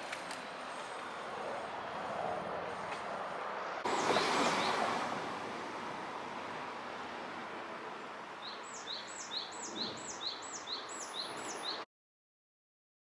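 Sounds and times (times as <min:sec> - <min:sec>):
outdoor background hiss: 0:03.0 - 0:11.8
bird calling: 0:08.4 - 0:11.8.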